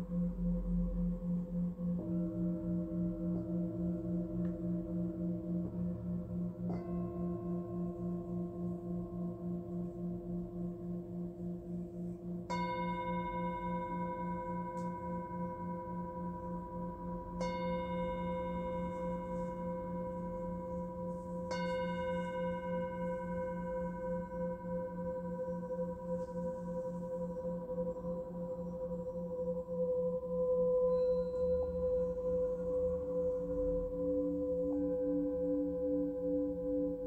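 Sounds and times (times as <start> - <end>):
low singing bowl ringing: 0.0 - 37.0
singing bowl struck: 12.4 - 28.9.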